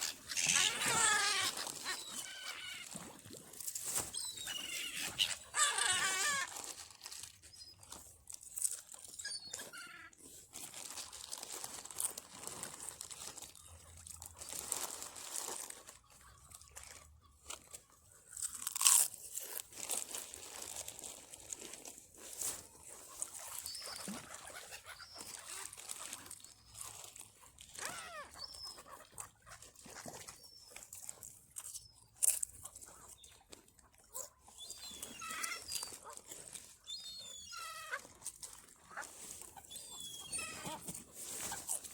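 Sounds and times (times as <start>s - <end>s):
crisp packet crackling: 0.0s - 9.3s, 10.5s - 29.2s
crisps crunching: 0.0s - 41.9s
bird calls: 4.0s - 6.4s, 23.3s - 26.6s, 39.6s - 41.8s.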